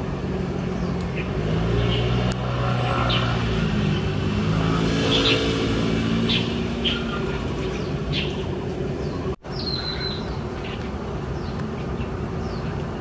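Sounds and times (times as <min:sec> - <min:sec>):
vehicle engine running: 0:00.0 - 0:09.4
small bird chirping: 0:00.7 - 0:13.0.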